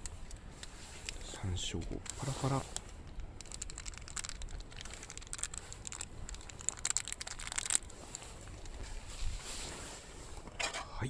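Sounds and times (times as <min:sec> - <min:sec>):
plastic packet crinkling: 0:00.9 - 0:09.1.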